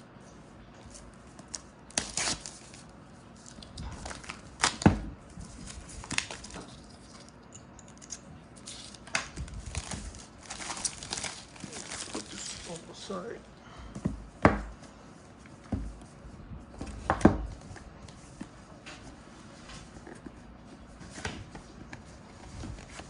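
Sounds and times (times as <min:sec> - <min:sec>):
packaging being opened: 0:01.4 - 0:02.8, 0:05.4 - 0:07.4, 0:08.0 - 0:13.0.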